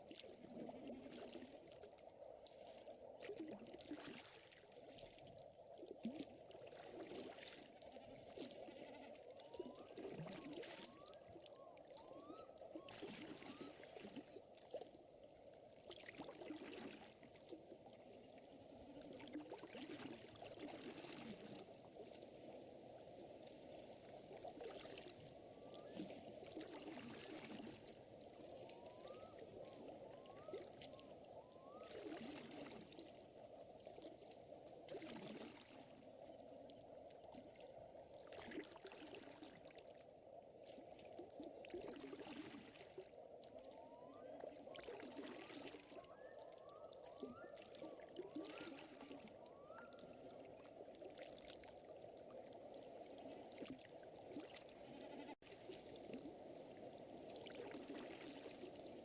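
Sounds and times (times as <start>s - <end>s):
lake water lapping: 47.0s - 59.0s.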